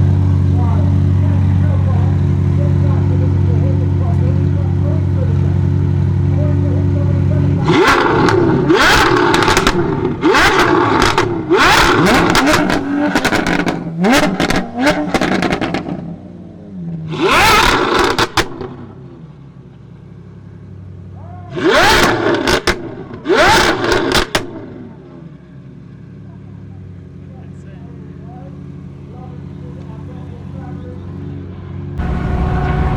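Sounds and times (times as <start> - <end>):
car engine revving hard: 7.5 - 16.1, 17.1 - 18.9, 21.5 - 24.9, 32.0 - 32.9
exhaust crackles and pops: 7.7 - 16.0.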